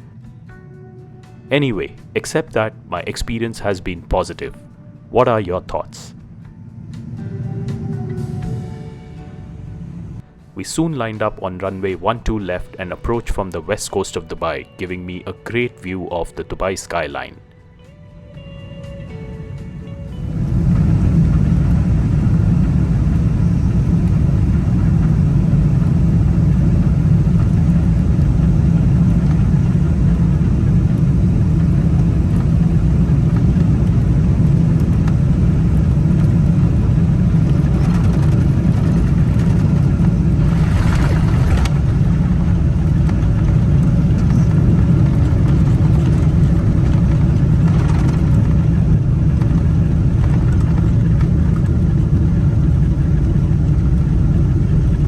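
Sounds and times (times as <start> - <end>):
airplane cabin engine rumble: 0.0 - 17.3, 18.2 - 55.0
rushing air noise: 5.0 - 10.8, 20.2 - 51.6.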